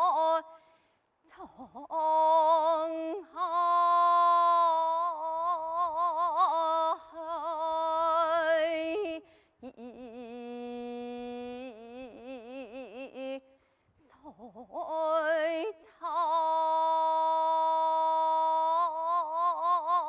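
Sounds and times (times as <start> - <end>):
woman singing unaccompanied: 0.0 - 0.6, 1.3 - 13.5, 14.1 - 20.0.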